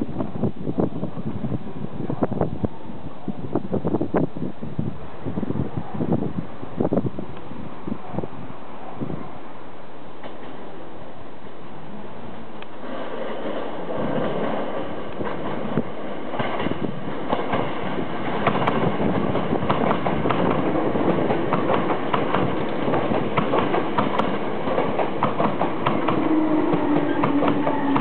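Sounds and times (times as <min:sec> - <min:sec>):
rumble of passing train cars: 0:00.0 - 0:28.0
train wheels clicking over rail joints: 0:12.7 - 0:28.0
train motor whine: 0:25.6 - 0:28.0.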